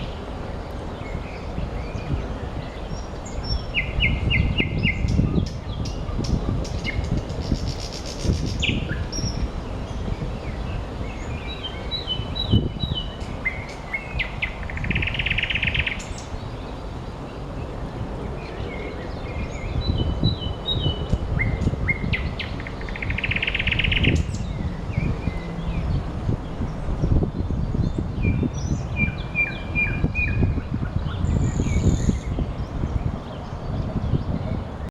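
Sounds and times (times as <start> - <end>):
nightingale singing: 1.4 - 16.6, 18.5 - 26.0, 27.9 - 32.8.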